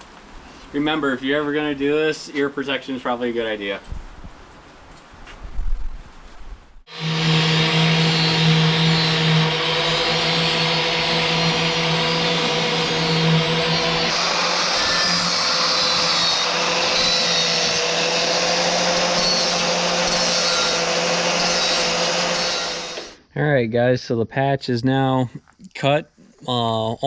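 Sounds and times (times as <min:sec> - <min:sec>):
power tool cutting sheet metal: 0:06.9 - 0:23.2.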